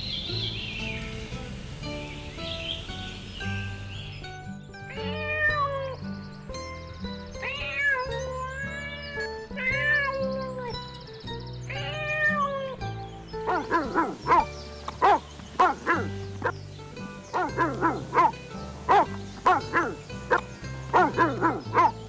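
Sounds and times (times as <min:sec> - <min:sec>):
cat meowing: 0:04.9 - 0:06.0, 0:07.4 - 0:10.7, 0:11.7 - 0:12.8, 0:18.9 - 0:21.9
dog yipping and barking: 0:13.4 - 0:16.6, 0:17.3 - 0:22.0.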